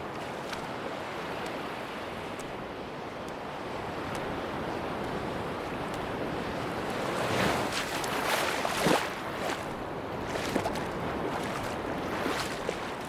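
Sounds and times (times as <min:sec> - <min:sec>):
small waves splashing on beach: 0:00.0 - 0:13.0
wind: 0:00.0 - 0:13.0
surf rushing: 0:05.3 - 0:13.0.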